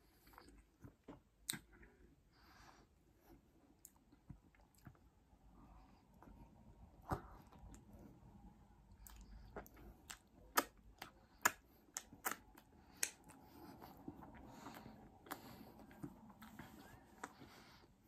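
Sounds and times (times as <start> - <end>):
person chewing food: 0.0 - 2.2, 3.2 - 17.9
wet mouth clicks and smacks: 0.5 - 1.9, 8.9 - 13.4.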